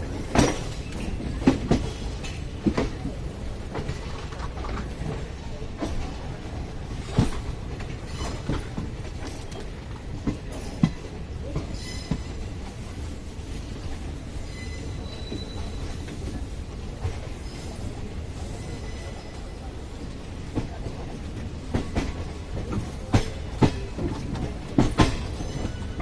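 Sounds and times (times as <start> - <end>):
train rumbling on track: 0.0 - 26.0
faint wheel squeals: 14.4 - 16.1
wheels clacking over rail joints: 21.6 - 26.0.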